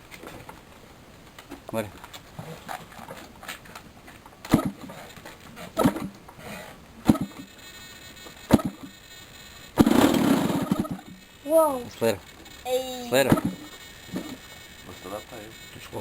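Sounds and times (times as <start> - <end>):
model engine popping: 9.8 - 11.3.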